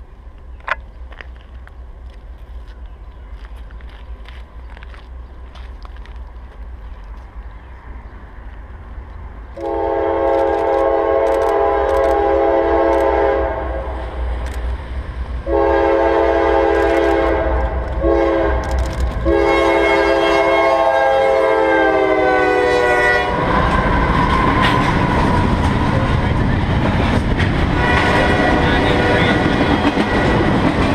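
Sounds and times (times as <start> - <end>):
train wheels on rails: 0.0 - 7.6, 8.3 - 30.9
locomotive engine passing: 0.0 - 30.9
locomotive air horn: 9.6 - 13.9, 15.4 - 23.5, 27.8 - 29.4.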